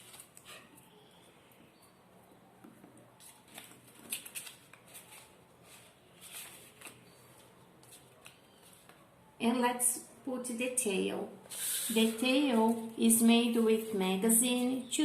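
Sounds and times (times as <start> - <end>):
paper rustling and crinkling: 0.0 - 0.9, 3.1 - 9.1.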